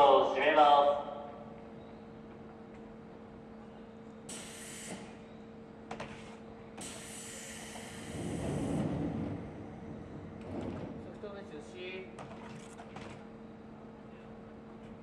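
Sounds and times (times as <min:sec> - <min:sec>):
air hisses: 0:06.8 - 0:08.8
electric train humming: 0:07.0 - 0:11.7
low rumble: 0:08.2 - 0:11.5.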